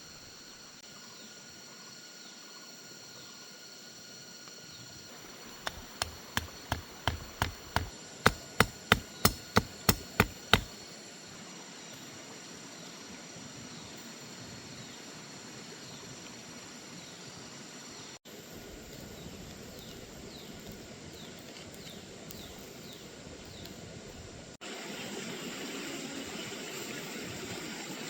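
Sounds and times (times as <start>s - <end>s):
rapid knocking on wood: 5.2s - 10.7s.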